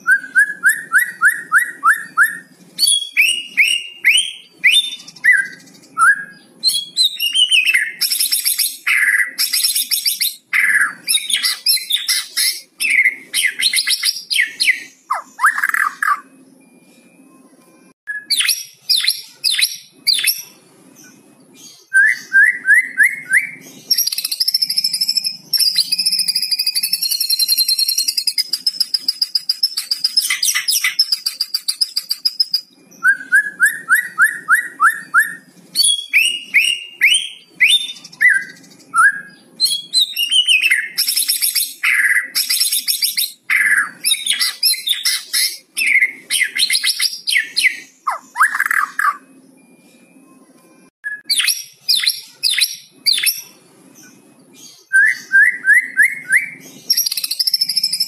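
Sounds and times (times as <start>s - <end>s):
bird singing varied song: 0.0s - 58.0s.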